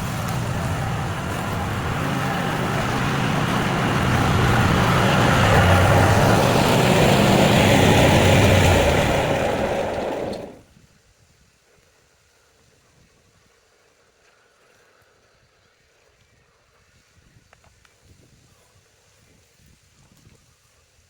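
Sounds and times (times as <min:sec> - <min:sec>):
small petrol engine running: 0:00.0 - 0:10.6.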